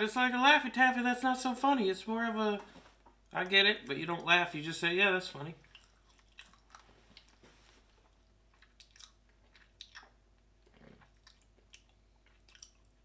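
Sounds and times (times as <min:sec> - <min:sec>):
person chewing candy: 0:05.6 - 0:13.0.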